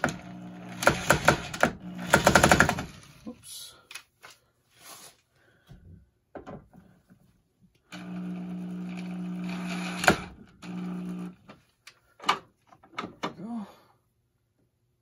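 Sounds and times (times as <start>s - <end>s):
electric drill driving screws: 0.0s - 3.2s, 7.9s - 11.4s.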